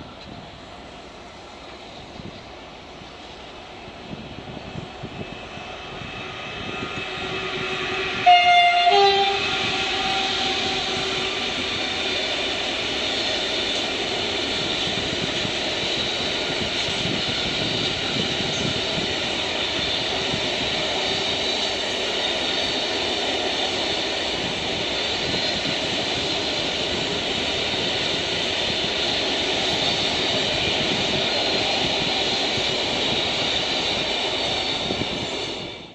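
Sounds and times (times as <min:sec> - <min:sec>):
freight train passing: 0:00.0 - 0:35.9
two-note train horn: 0:06.6 - 0:11.4.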